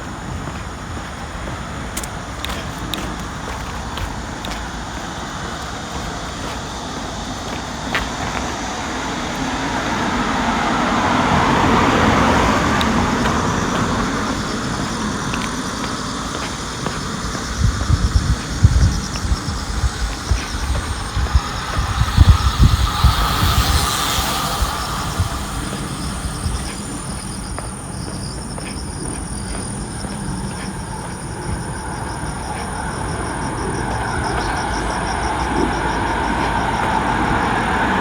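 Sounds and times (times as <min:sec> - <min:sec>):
steady low rumble: 0:00.0 - 0:38.0
vehicle passing by: 0:08.9 - 0:16.4, 0:17.2 - 0:27.8.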